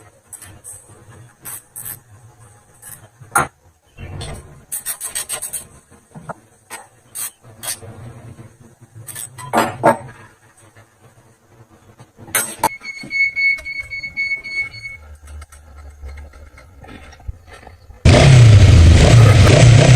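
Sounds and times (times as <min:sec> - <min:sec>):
scraping and rubbing: 0:00.2 - 0:03.3, 0:04.2 - 0:12.6.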